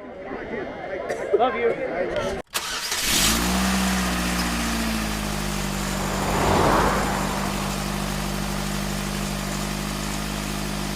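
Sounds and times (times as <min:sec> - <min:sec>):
car engine idling: 0:04.0 - 0:10.9.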